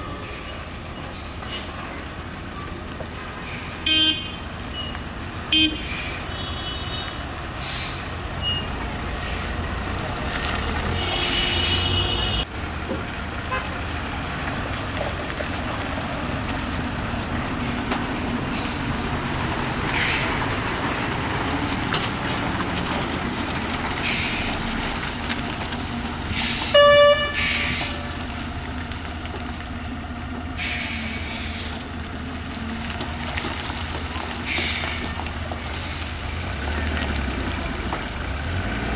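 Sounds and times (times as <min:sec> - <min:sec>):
heavy truck engine under load: 0:00.0 - 0:38.9
truck horn blast: 0:03.8 - 0:04.5, 0:05.5 - 0:07.3, 0:10.7 - 0:12.5, 0:13.4 - 0:13.9, 0:26.4 - 0:28.2.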